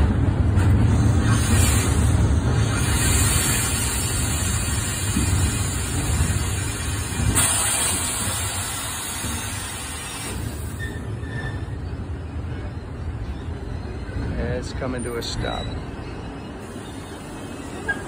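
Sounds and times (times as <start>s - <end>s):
train wheels rumbling on rails: 0.0s - 18.0s
faint wheel squeals: 10.7s - 11.9s.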